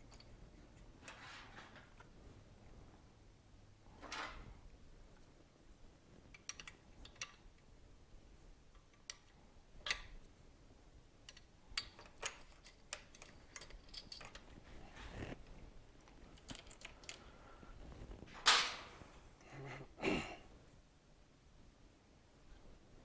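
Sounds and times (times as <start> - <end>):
small metal parts handled: 11.3 - 15.4, 16.3 - 17.2.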